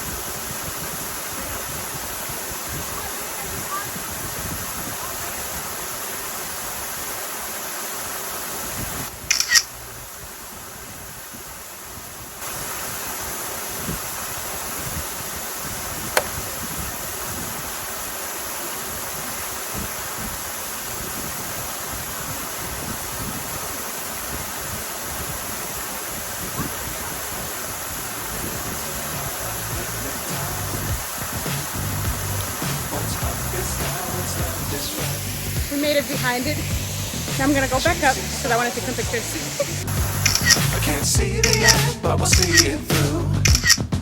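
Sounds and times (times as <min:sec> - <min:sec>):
wind buffeting microphone: 0:00.0 - 0:07.2, 0:08.6 - 0:40.4
waterfall rushing: 0:00.0 - 0:43.8
sharp click: 0:09.3 - 0:09.7, 0:40.2 - 0:40.8, 0:41.4 - 0:42.7, 0:43.5 - 0:43.9.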